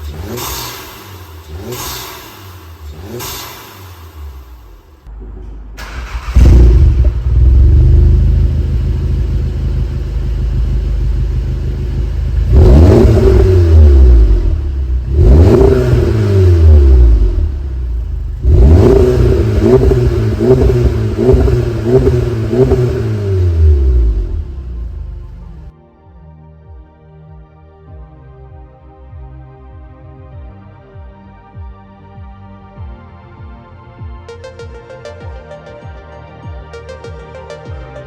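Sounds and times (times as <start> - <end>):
car engine starting and revving: 0.0 - 5.2, 5.8 - 25.7.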